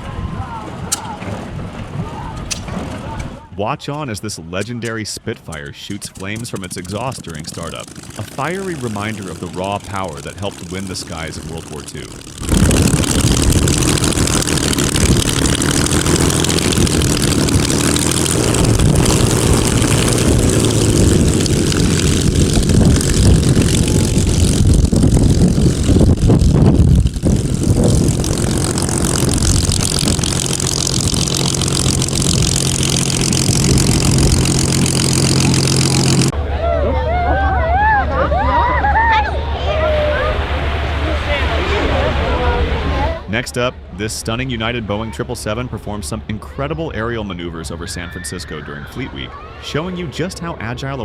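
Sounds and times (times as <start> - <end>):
propeller noise: 0.7 - 36.6
piston aircraft engine running: 4.5 - 36.4.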